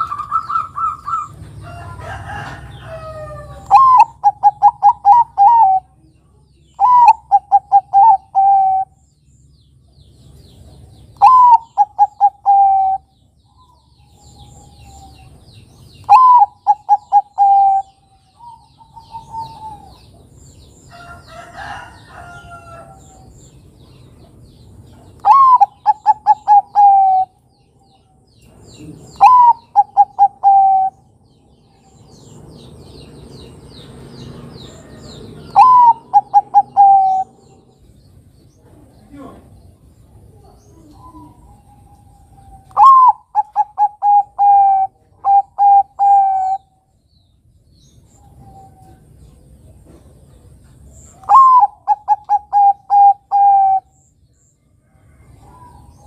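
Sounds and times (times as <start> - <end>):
dove cooing song: 0.0 - 9.0, 10.4 - 23.6, 24.2 - 47.0, 48.0 - 54.2, 54.8 - 56.0.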